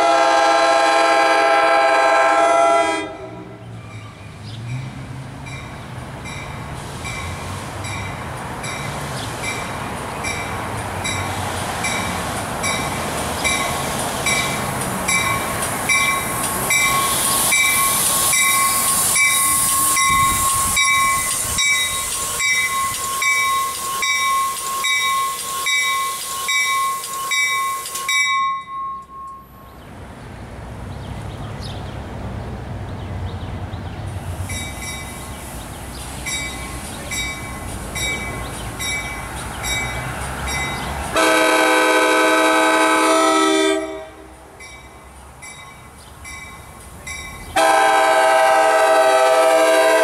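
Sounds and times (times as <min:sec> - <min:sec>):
train wheel and rail noise: 0:00.0 - 0:50.0
bell ringing: 0:15.1 - 0:29.7
high brake squeal: 0:16.0 - 0:29.7.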